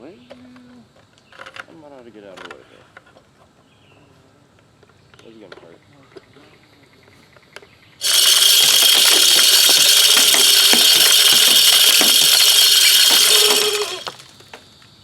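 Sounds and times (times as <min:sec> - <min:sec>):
feeder spinner motor whirring: 0:08.0 - 0:14.2
corn kernels striking: 0:08.0 - 0:14.3.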